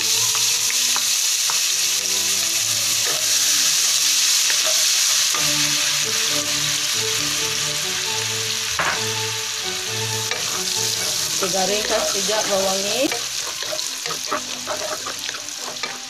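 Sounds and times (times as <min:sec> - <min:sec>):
onion sizzling in oil: 0:00.0 - 0:16.0
wooden spatula scraping wok: 0:09.9 - 0:16.0.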